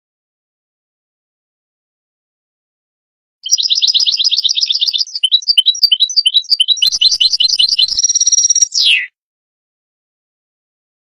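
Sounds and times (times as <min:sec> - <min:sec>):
goldfinch singing trills: 0:03.4 - 0:09.1.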